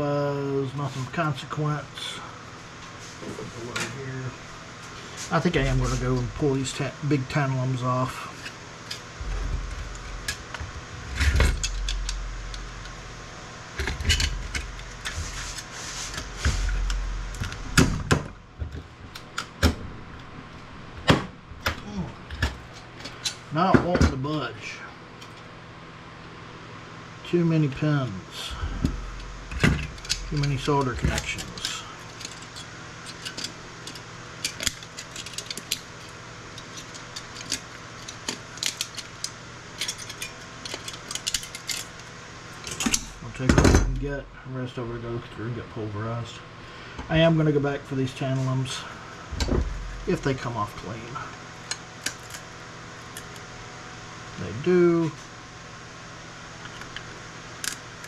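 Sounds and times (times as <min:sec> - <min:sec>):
low handling rumble: 0:09.1 - 0:18.6, 0:28.5 - 0:31.8, 0:49.2 - 0:51.2.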